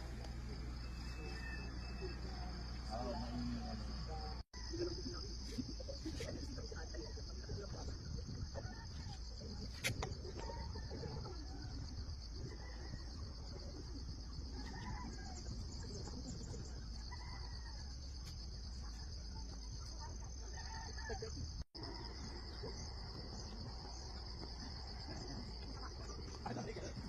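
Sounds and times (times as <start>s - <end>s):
faint distant animal calls: 0.0s - 4.8s
insects chirping chorus: 0.0s - 27.0s.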